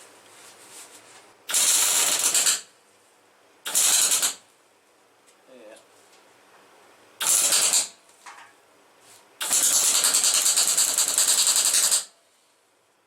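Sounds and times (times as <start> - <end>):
arc welding crackle: 1.4 - 2.8, 3.6 - 4.5, 7.2 - 8.2, 9.4 - 12.2.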